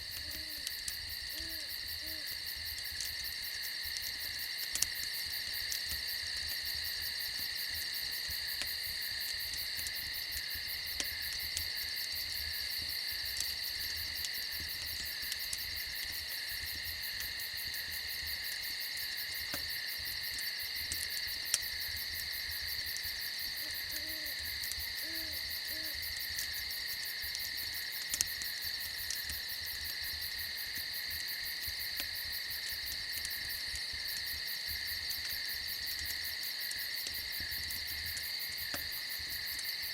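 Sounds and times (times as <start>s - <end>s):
campfire crackling: 0.0s - 39.9s
crickets chirping: 0.0s - 39.9s
faint low hoots: 23.6s - 24.4s.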